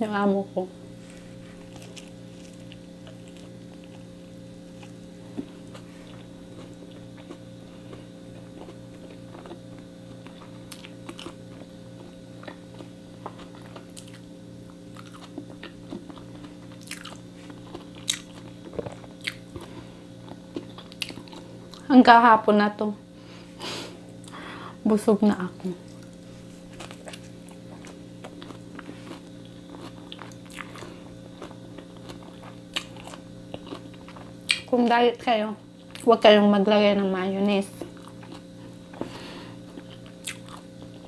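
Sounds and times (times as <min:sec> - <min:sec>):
steady low hum: 0:00.0 - 0:41.0
chewing sandwich: 0:01.1 - 0:21.8, 0:25.9 - 0:34.7, 0:37.8 - 0:41.0.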